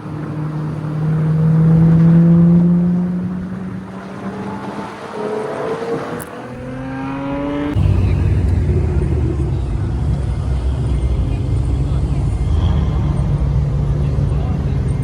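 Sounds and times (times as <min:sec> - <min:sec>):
sports car engine accelerating: 0:00.0 - 0:15.0
deep steady engine rumble: 0:06.2 - 0:15.0.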